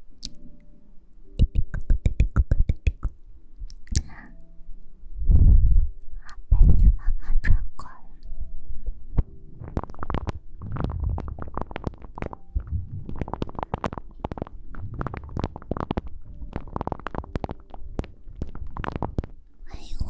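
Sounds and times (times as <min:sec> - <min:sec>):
muffled low thuds: 0:05.2 - 0:06.0, 0:08.9 - 0:19.4
rustling against microphone: 0:09.2 - 0:19.4.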